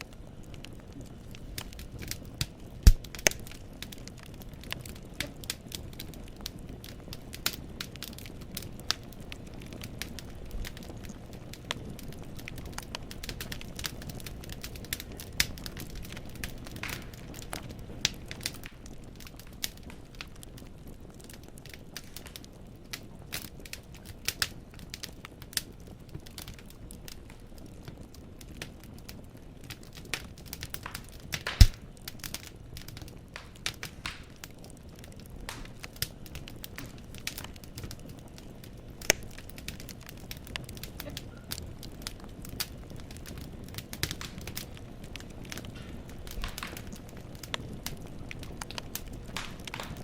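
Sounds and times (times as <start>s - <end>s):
logs crackling in fireplace: 0.0s - 50.0s
low steady fire rumble: 0.0s - 50.0s
loud sharp fire pop: 2.8s - 3.5s, 16.8s - 17.2s, 30.9s - 31.8s, 33.4s - 34.3s, 45.8s - 46.9s, 49.4s - 50.0s.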